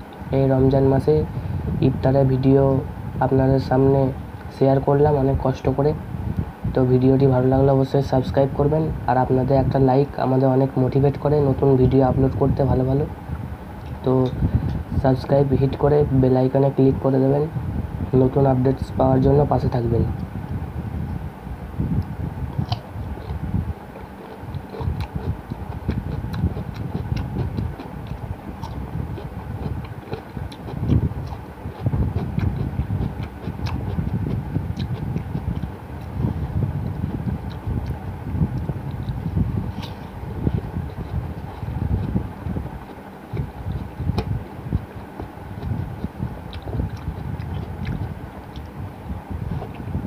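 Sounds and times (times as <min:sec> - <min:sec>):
chewing with mouth clicks: 0:22.0 - 0:49.9.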